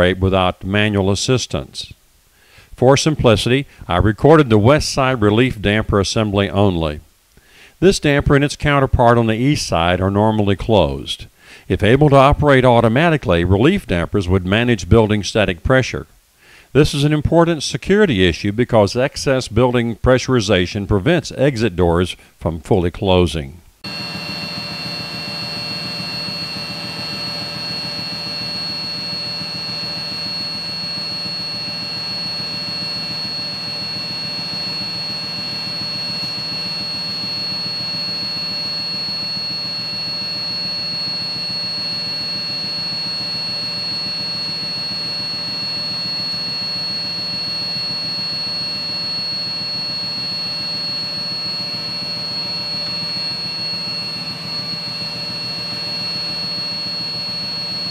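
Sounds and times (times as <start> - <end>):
low mechanical hum: 23.7 - 57.9
high-pitched whine: 23.8 - 57.9.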